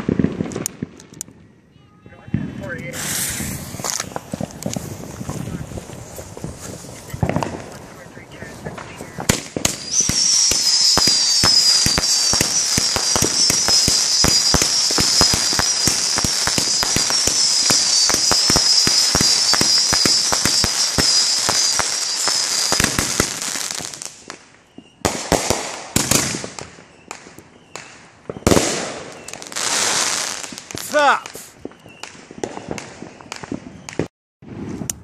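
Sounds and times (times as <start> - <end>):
fireworks crackling: 0.0 - 35.0
firework whistle: 2.9 - 4.9, 9.6 - 25.2, 26.9 - 34.1.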